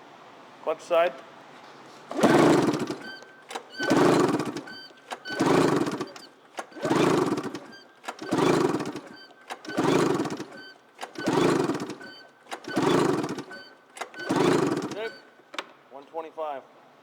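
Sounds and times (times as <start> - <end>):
engine cranking strokes: 1.9 - 15.5
short clicks: 2.1 - 15.8.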